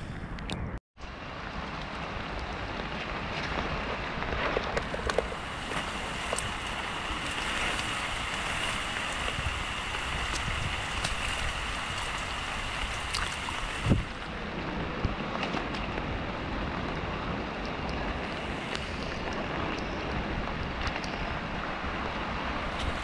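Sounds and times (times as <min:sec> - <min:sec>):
rain pattering on leaves: 0:01.6 - 0:14.0.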